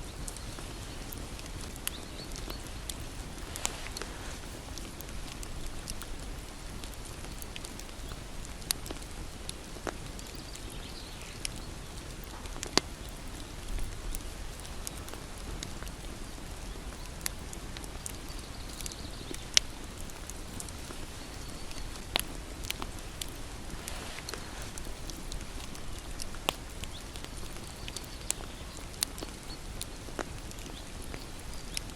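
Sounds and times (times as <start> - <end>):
wood fire crackling: 0.0 - 31.9.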